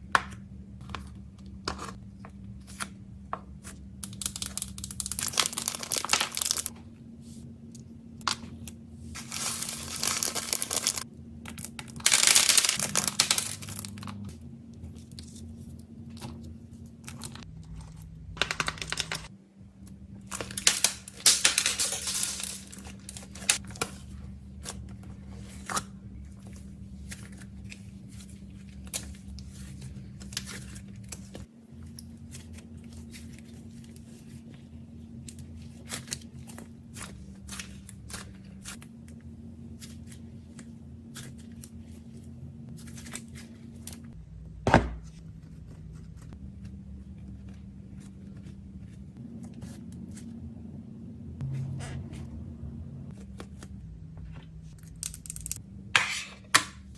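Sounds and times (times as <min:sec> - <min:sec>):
packaging tearing and crinkling: 0:04.9 - 0:06.7, 0:09.2 - 0:11.0, 0:11.6 - 0:14.1.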